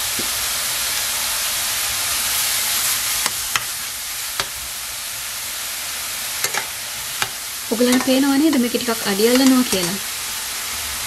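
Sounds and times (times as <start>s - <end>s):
zucchini sizzling in oil: 0.0s - 11.0s.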